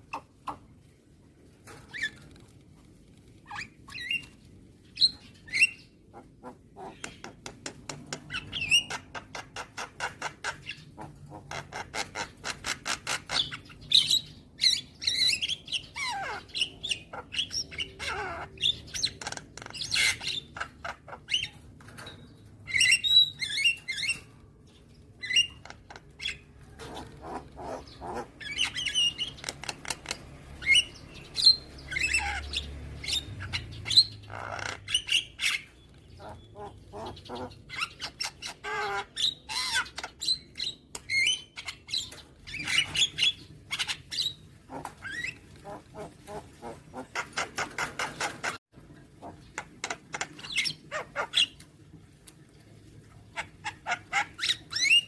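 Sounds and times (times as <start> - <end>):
myna bird calling: 5.0 - 24.4, 25.2 - 48.6.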